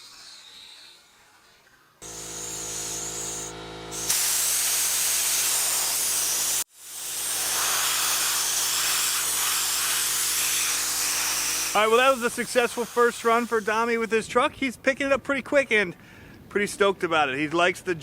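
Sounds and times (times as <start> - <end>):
motor hum: 2.0 - 11.8
pressurised spray hissing: 2.0 - 14.2.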